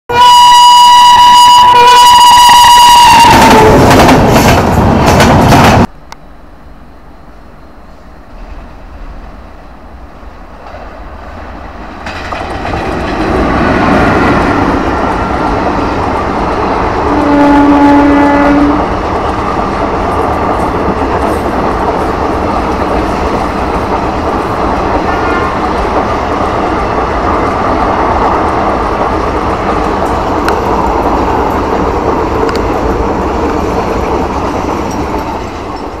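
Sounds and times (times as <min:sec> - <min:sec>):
train horn blast: 0:00.1 - 0:04.0, 0:17.0 - 0:18.9
train rumble: 0:00.1 - 0:36.0
wheel-on-rail noise: 0:18.8 - 0:36.0.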